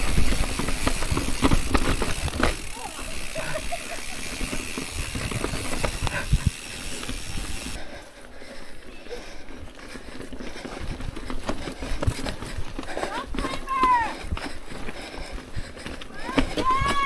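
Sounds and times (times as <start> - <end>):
bike knocks and rattles: 0.0 - 7.8
bike tyres crunching on rock: 0.0 - 7.8, 16.2 - 17.0.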